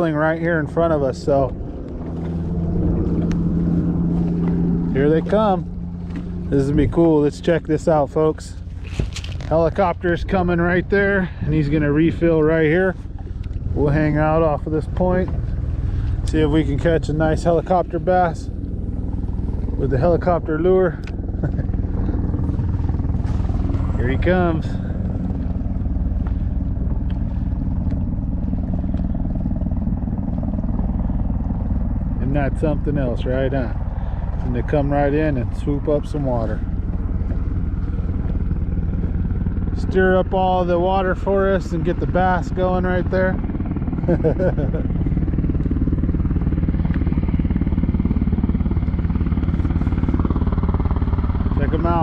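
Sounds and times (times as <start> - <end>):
helicopter rotor beating: 0.0 - 52.0.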